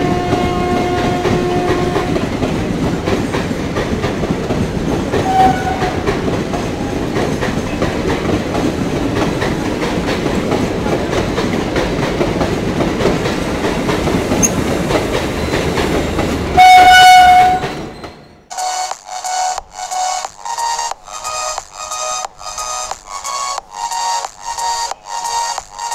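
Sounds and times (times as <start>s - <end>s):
train horn blast: 0.0s - 2.4s, 5.2s - 6.1s, 16.6s - 17.7s
train coaches rumbling past: 0.0s - 25.9s
wheels clacking over rail joints: 0.0s - 25.9s.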